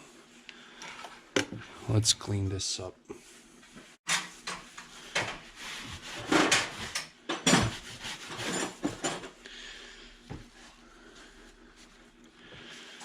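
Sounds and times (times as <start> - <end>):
rubbing and scraping by hand: 3.4 - 9.2.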